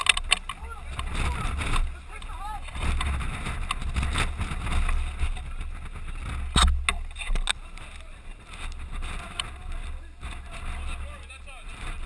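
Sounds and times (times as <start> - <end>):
sharp clicks: 0.0 - 3.9
microphone handling rumble: 0.0 - 12.0
wind on microphone: 0.0 - 12.0.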